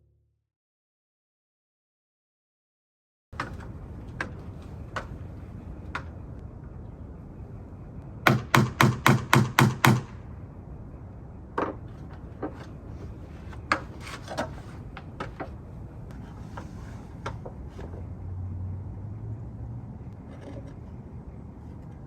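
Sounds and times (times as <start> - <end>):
sharp knocks: 8.3 - 10.2.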